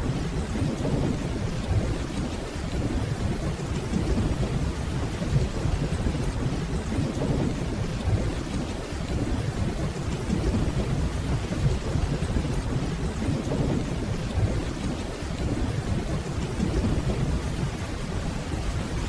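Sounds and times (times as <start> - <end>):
distant thunder rumble: 0.0 - 19.0
steady rainfall: 0.0 - 19.0.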